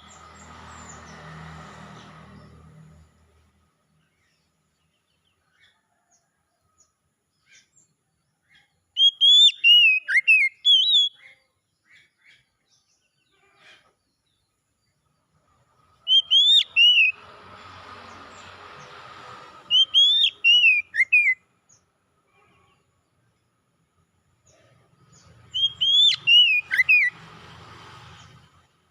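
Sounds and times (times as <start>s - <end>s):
bird singing whistled notes: 8.6s - 11.3s, 16.0s - 17.2s, 19.7s - 21.8s, 25.1s - 27.2s
faint rushing noise: 16.6s - 20.8s, 25.2s - 28.9s.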